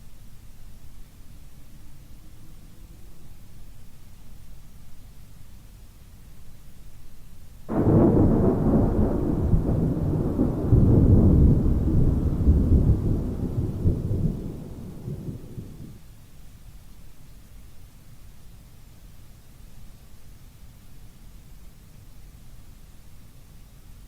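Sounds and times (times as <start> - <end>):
faint rain hiss: 0.0 - 24.0
thunderclap rumbling: 7.7 - 16.0.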